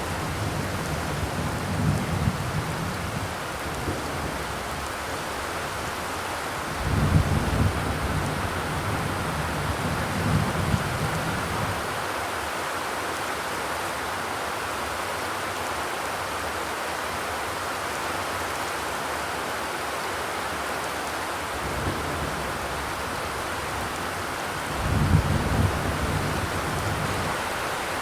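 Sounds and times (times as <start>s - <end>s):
rain on a metal roof: 0.0s - 28.0s.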